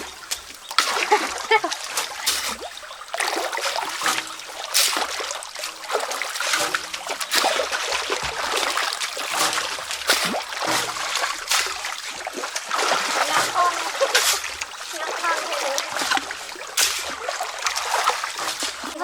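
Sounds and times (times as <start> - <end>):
water splashing and trickling: 0.0 - 19.0.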